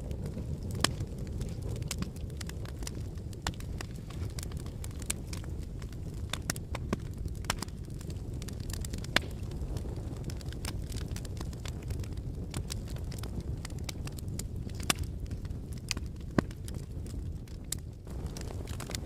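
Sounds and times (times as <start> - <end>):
lava flow cracking and clicking: 0.0 - 19.0.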